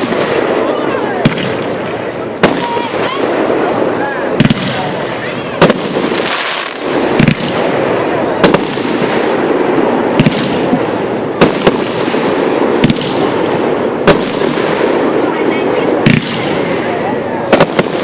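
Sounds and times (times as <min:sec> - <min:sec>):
fireworks sharp reports: 0:00.0 - 0:18.0.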